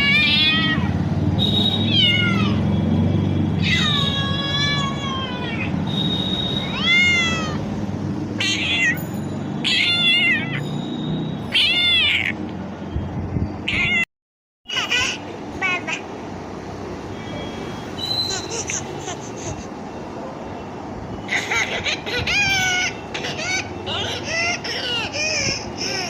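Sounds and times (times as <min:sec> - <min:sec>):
cat meowing: 0:00.0 - 0:01.0, 0:01.9 - 0:02.6, 0:03.6 - 0:05.7, 0:06.7 - 0:07.6, 0:08.4 - 0:09.0, 0:09.6 - 0:10.6, 0:11.5 - 0:12.4, 0:13.6 - 0:14.1.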